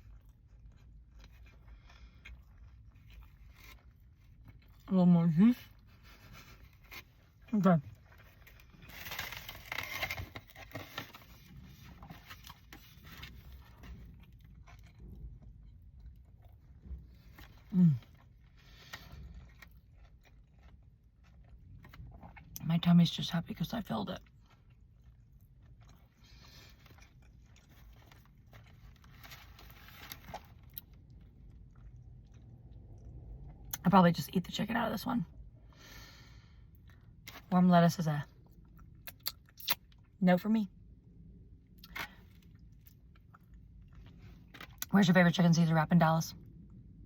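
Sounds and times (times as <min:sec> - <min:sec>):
person chewing food: 0:00.0 - 0:04.9, 0:05.7 - 0:22.6, 0:24.2 - 0:33.8
soft eating clicks and scrapes: 0:00.0 - 0:04.9, 0:05.6 - 0:22.6, 0:24.2 - 0:33.8
low steady hum: 0:00.0 - 0:47.0.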